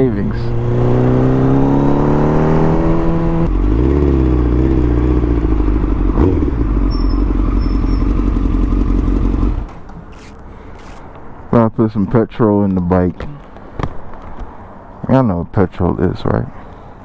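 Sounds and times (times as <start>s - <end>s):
motorcycle engine revving: 0.0s - 9.9s.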